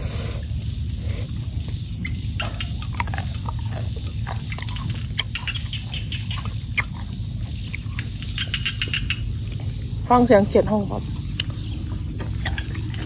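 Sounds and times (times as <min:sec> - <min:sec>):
steady low rumble: 0:00.0 - 0:13.0
person chewing crunchy pod: 0:02.4 - 0:10.1, 0:11.0 - 0:13.0.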